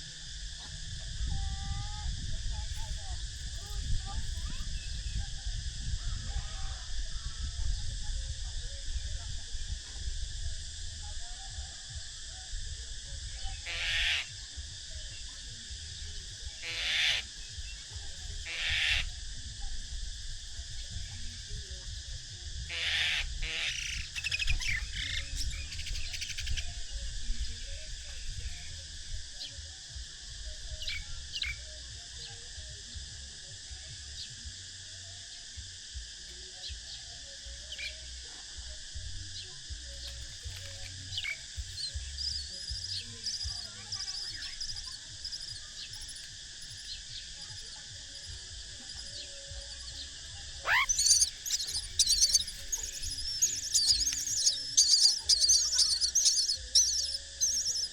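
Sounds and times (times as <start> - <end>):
baby birds begging chirps: 13.5 - 14.4, 16.6 - 19.1, 22.7 - 27.0, 40.0 - 49.2, 49.8 - 57.9
high-pitched hum: 47.6 - 57.9.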